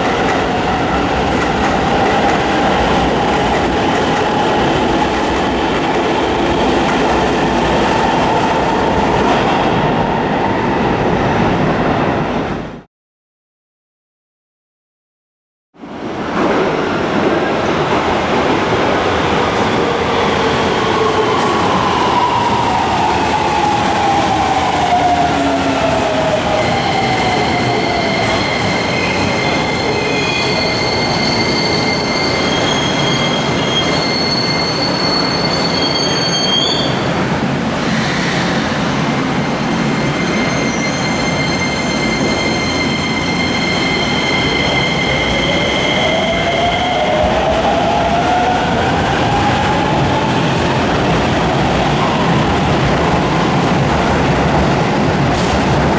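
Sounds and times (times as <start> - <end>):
train running noise: 20.9 - 55.9.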